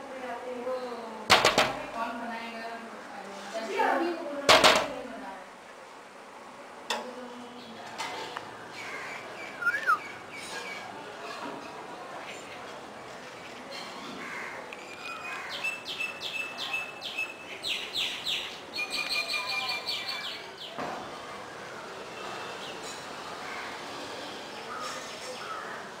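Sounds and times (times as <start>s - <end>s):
faint bird chirps: 9.1s - 10.9s
bird calling sharp high notes: 9.5s - 10.1s.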